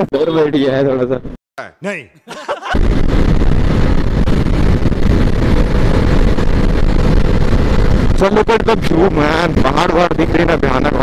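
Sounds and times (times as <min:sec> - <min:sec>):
wind buffeting on microphone: 0:02.8 - 0:11.0
motorcycle engine running: 0:03.5 - 0:10.9.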